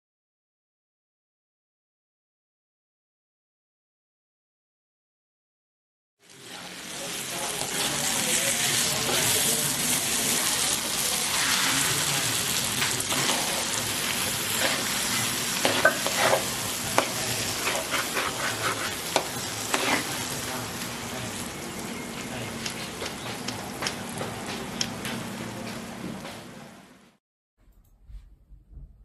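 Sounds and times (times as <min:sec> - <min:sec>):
paste sizzling in a wok: 0:06.2 - 0:24.8
metal spatula scraping a pan: 0:11.2 - 0:12.1, 0:12.8 - 0:20.3.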